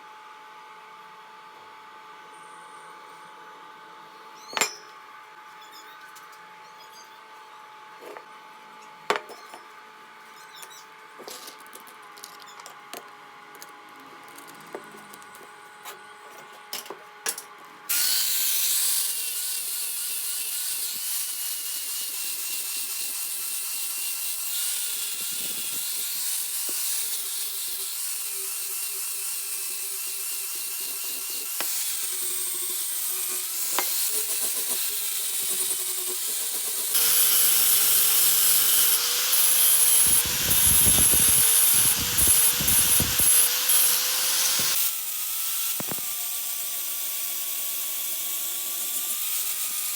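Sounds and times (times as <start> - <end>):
electric grinder on metal: 17.9 - 49.9.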